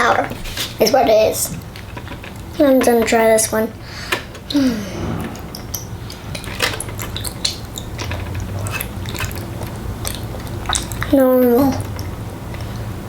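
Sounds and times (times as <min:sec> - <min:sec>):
steady low hum: 0:04.5 - 0:09.6
child chewing: 0:06.1 - 0:13.0.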